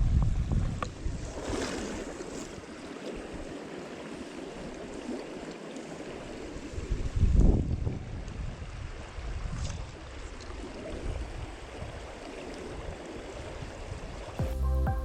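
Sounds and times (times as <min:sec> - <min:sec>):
wind buffeting microphone: 0:00.0 - 0:02.6, 0:06.7 - 0:14.3
stream flowing: 0:01.4 - 0:07.1, 0:08.7 - 0:14.7.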